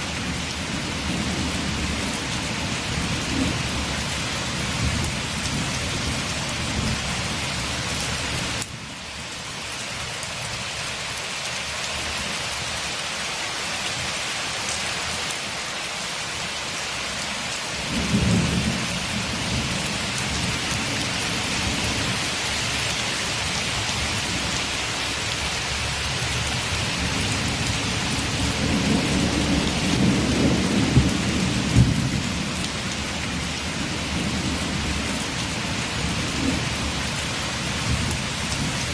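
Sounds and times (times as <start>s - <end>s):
heavy rain: 0.0s - 38.9s
low thunder rumbling: 17.8s - 22.2s, 26.8s - 37.1s.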